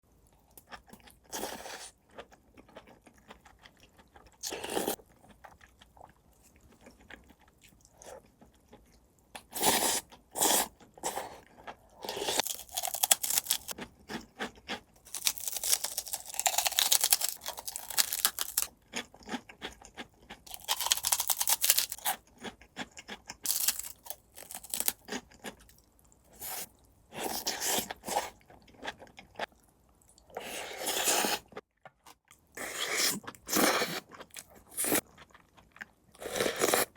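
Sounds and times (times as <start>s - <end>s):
person crunching crisp food: 12.0s - 25.8s.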